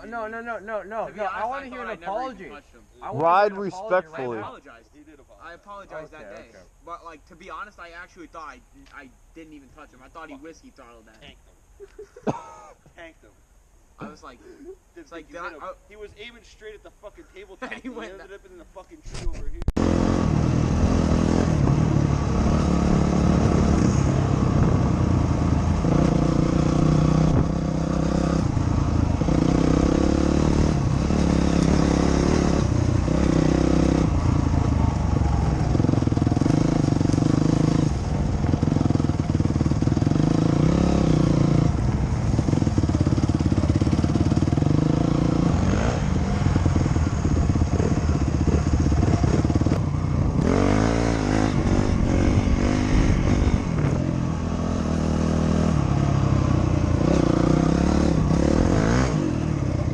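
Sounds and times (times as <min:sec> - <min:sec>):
dirt bike engine revving: 0:19.8 - 0:59.9.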